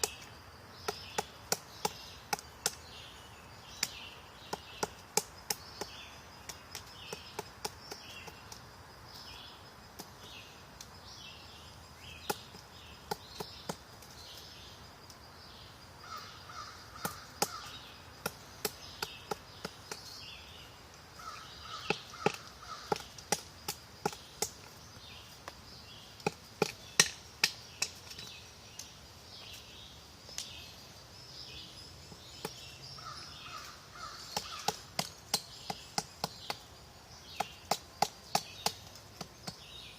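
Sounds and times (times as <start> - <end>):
woodpecker pecking wood: 0.0 - 2.8, 3.8 - 8.7, 12.2 - 14.2, 16.5 - 20.2, 21.2 - 28.4, 32.4 - 39.9
harsh cawing bird calls: 16.0 - 20.2, 21.1 - 24.2, 32.9 - 36.6.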